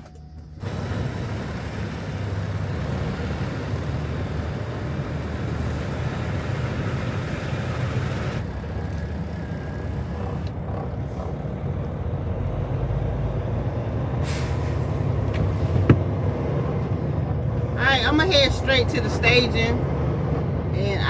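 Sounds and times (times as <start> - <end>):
truck diesel engine rumbling: 0.0 - 21.0
broad rushing hiss: 0.6 - 8.4.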